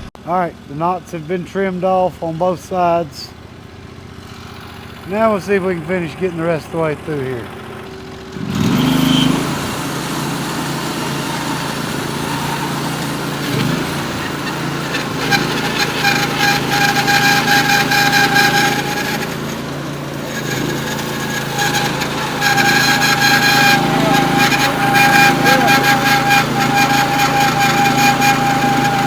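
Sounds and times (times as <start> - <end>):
bandsaw mill cutting log: 0.0 - 29.0
steady engine hum: 0.0 - 29.0
high saw blade whine: 0.2 - 29.0.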